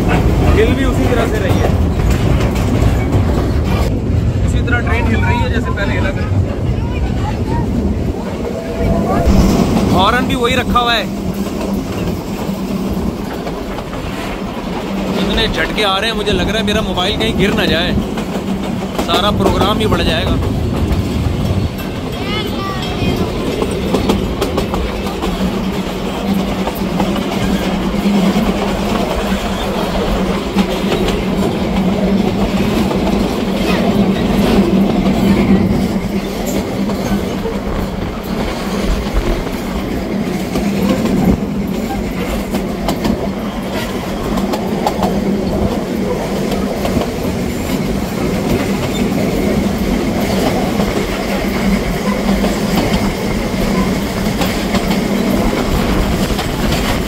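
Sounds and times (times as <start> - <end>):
train wheels clattering over rails: 0.0 - 57.0
steady low drone: 7.6 - 11.6.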